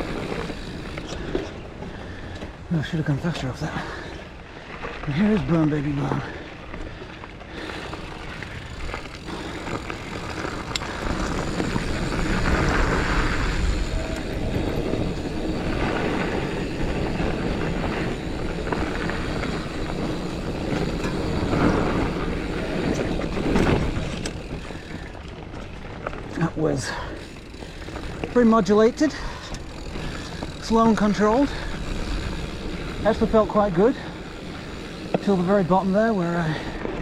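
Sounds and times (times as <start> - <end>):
bike tyres crunching over dirt: 0.0 - 37.0
bike knocking over bumps: 17.3 - 26.4.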